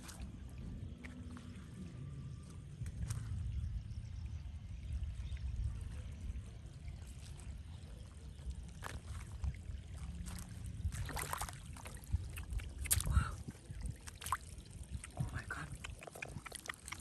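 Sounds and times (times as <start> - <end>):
low rumble: 0.0 - 17.0
water sloshing and trickling: 0.0 - 17.0
water splashes: 8.7 - 17.0.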